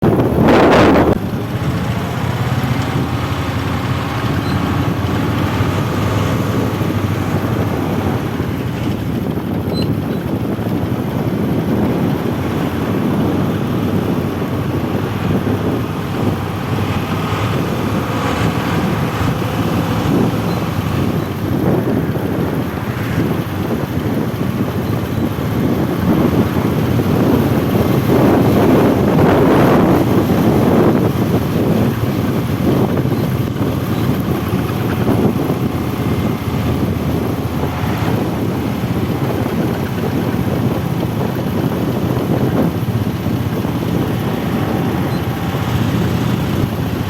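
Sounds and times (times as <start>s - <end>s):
heavy truck engine running: 0.0s - 47.0s
road traffic noise: 0.0s - 47.0s.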